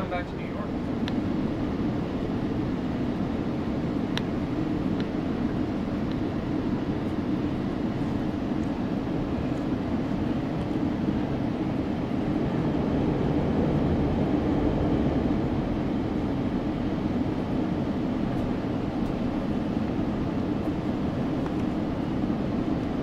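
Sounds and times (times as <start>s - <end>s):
train rumbling from on board: 9.3s - 22.1s.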